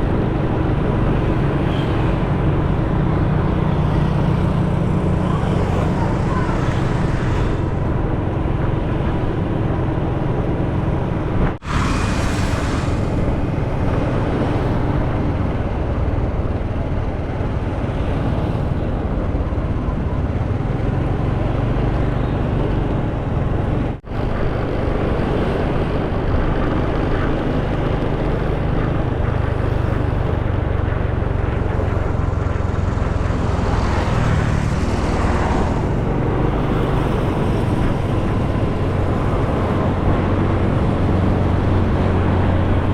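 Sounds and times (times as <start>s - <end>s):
loud rush of wind: 0.0s - 42.9s
motorcycle engine and road noise: 0.0s - 42.9s
surrounding traffic: 0.0s - 42.9s.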